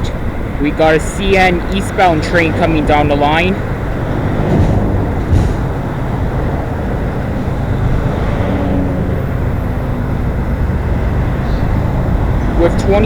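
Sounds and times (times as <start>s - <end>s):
diesel locomotive engines rumbling: 0.0s - 13.0s
train rolling noise: 0.1s - 8.6s.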